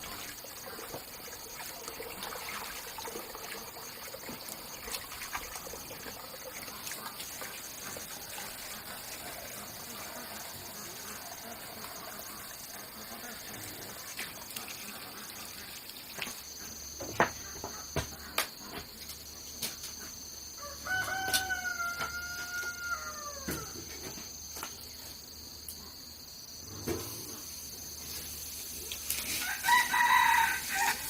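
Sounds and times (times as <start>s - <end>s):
high insect trill: 0.0s - 31.0s
rooster crowing: 20.6s - 23.8s, 29.3s - 31.0s.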